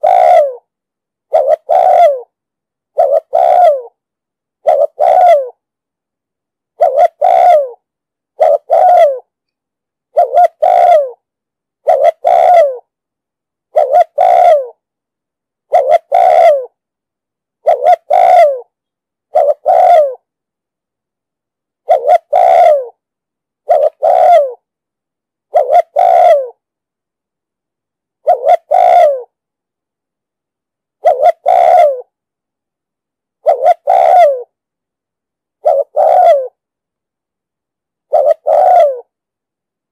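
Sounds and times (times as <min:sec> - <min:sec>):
dove cooing: 0:00.0 - 0:00.7, 0:01.3 - 0:02.3, 0:02.9 - 0:04.0, 0:04.6 - 0:05.6, 0:06.8 - 0:07.8, 0:08.4 - 0:09.3, 0:10.1 - 0:11.2, 0:11.8 - 0:12.9, 0:13.7 - 0:14.8, 0:15.7 - 0:16.8, 0:17.6 - 0:18.7, 0:19.3 - 0:20.3, 0:21.8 - 0:23.0, 0:23.6 - 0:24.6, 0:25.5 - 0:26.6, 0:28.2 - 0:29.4, 0:31.0 - 0:32.1, 0:33.4 - 0:34.5, 0:35.6 - 0:36.6, 0:38.1 - 0:39.1.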